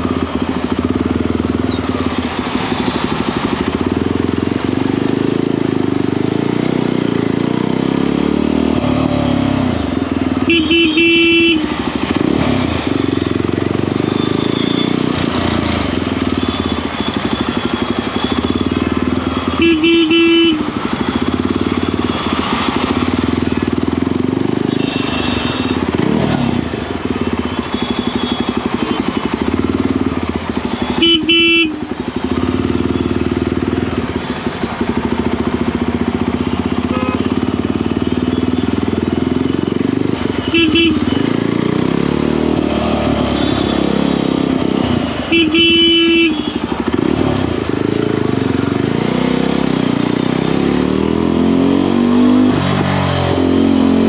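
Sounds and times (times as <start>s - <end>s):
motorcycle engine running: 0.0s - 54.0s
wind and road noise: 0.0s - 54.0s
horn honking: 10.3s - 13.2s, 16.2s - 22.4s, 24.5s - 26.2s, 27.4s - 29.5s, 30.6s - 33.2s, 36.7s - 38.8s, 40.2s - 41.6s, 43.2s - 47.1s.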